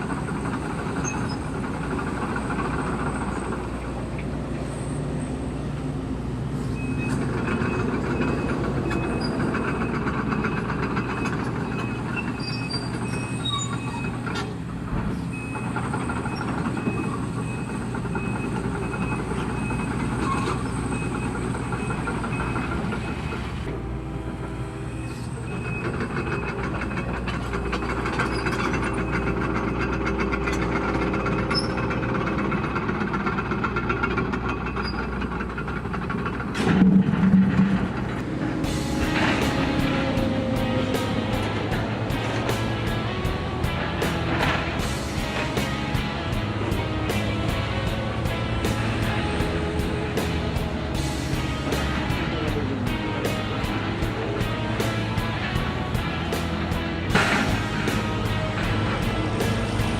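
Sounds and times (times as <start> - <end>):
excavator engine and hydraulics: 0.0 - 59.9
metal knocks and clanks: 25.9 - 59.9.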